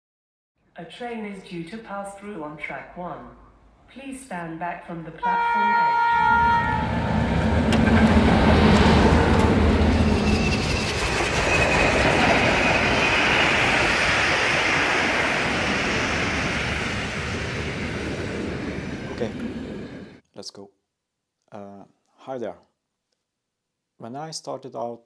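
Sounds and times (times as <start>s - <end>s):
train wheels rumbling on rails: 6.3s - 20.2s
high wheel squeal: 7.7s - 17.6s.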